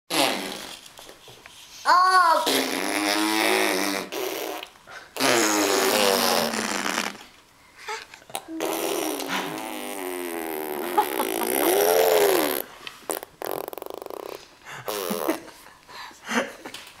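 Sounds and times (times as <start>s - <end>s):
baby blowing raspberries: 0.1s - 1.0s, 2.3s - 7.3s, 7.9s - 15.4s.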